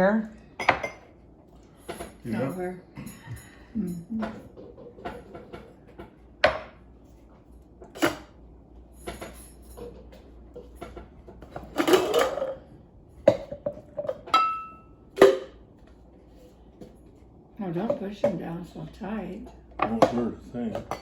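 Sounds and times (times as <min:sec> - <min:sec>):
dishes clinking and knocking: 0:00.6 - 0:01.2, 0:01.8 - 0:06.8, 0:07.8 - 0:15.6, 0:17.8 - 0:18.6, 0:19.5 - 0:21.0.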